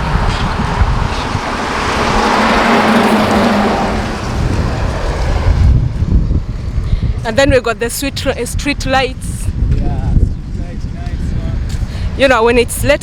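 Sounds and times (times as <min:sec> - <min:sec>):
motor vehicle passing: 0:00.0 - 0:08.1
wind buffeting microphone: 0:00.0 - 0:13.0.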